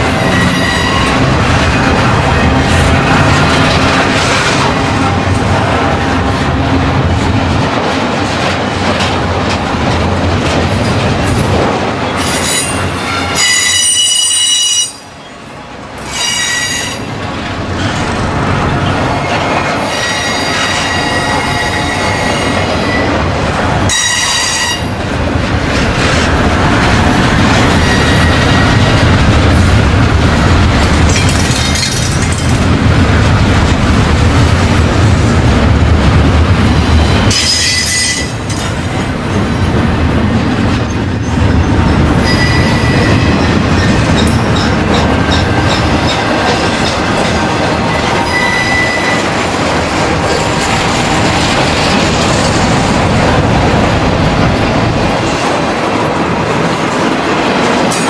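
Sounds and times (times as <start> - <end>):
steel wheels rumbling on rail: 0.0 - 58.0
high-pitched wheel squeal: 48.2 - 49.2.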